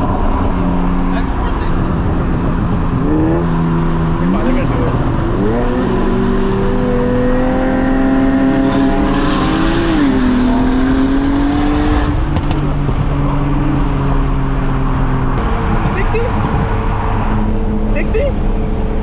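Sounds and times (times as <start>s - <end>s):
car engines running at speed: 0.0s - 19.0s.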